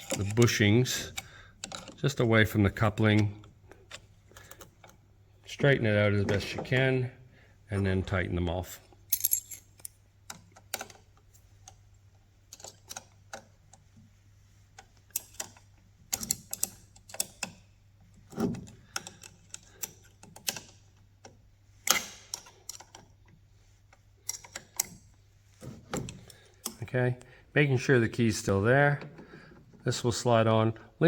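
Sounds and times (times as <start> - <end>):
hand tool clinking on bolts: 9.1 - 10.0.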